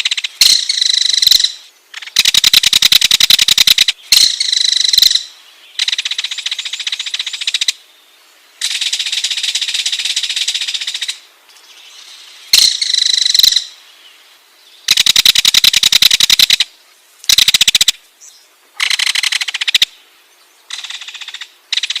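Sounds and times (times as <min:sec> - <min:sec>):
kingfisher rattling calls: 0:14.9 - 0:16.6, 0:17.3 - 0:18.0.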